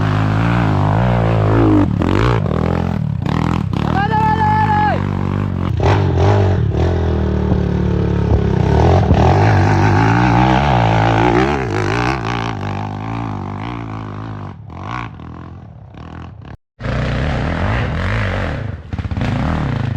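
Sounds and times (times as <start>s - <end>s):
dirt bike engine revving: 0.0s - 19.9s.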